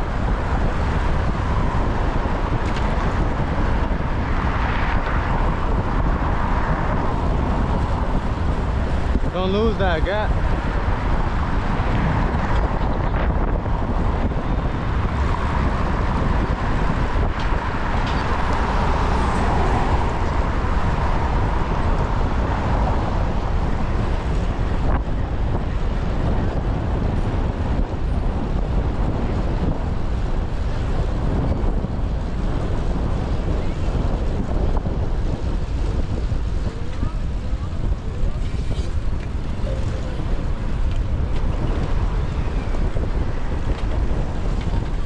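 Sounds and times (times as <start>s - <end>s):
city traffic noise: 0.0s - 45.0s
wind buffeting microphone: 0.0s - 45.0s
broad hum: 32.6s - 45.0s.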